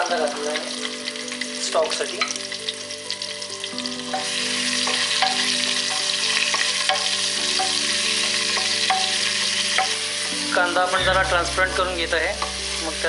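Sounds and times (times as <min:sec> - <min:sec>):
onion frying in hot oil: 0:00.0 - 0:13.0.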